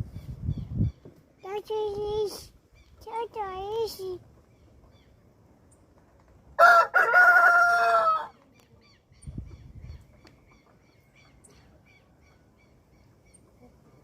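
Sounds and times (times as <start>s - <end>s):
rooster crowing: 6.6s - 8.3s.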